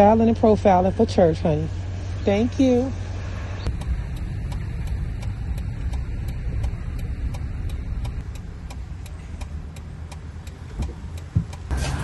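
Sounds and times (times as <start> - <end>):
car engine rumble: 0.0 - 12.0
sharp regular clicking: 3.6 - 11.7.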